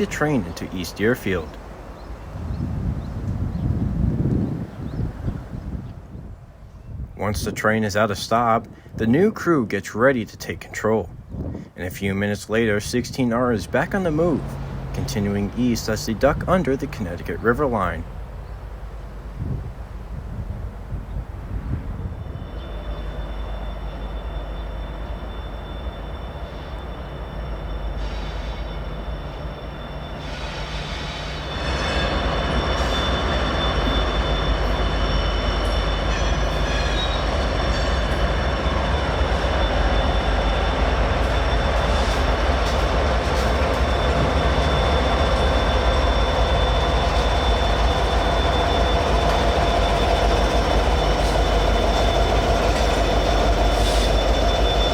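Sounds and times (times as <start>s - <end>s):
freight train passing: 0.0s - 54.9s
low engine rumble: 12.7s - 26.1s
high wheel squeal: 13.4s - 19.5s, 21.0s - 54.9s.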